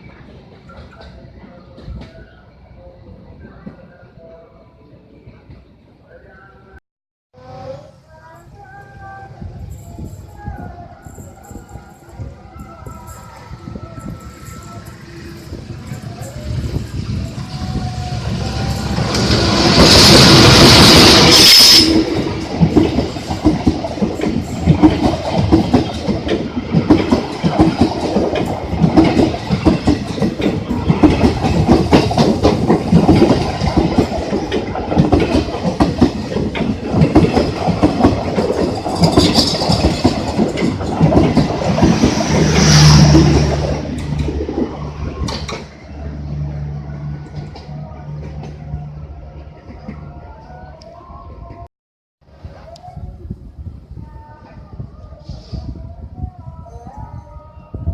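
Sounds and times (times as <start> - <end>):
loud rush with ringing tone: 13.0 - 22.6
train wheels clattering: 18.5 - 45.7.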